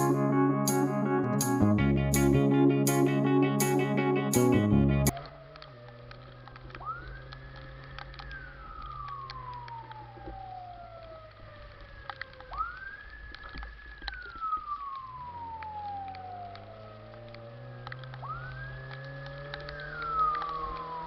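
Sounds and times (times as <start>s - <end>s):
fire engine siren wailing: 5.1s - 21.0s.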